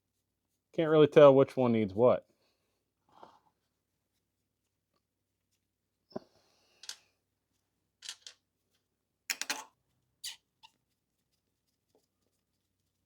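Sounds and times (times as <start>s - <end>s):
metal parts clinking and scraping: 6.8s - 7.0s, 8.0s - 8.4s.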